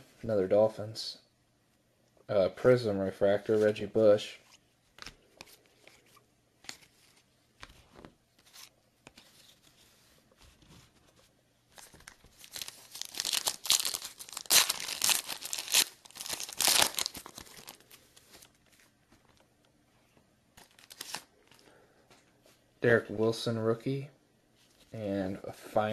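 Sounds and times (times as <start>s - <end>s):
foil wrapper crinkling and tearing: 11.8s - 18.6s, 20.6s - 21.4s.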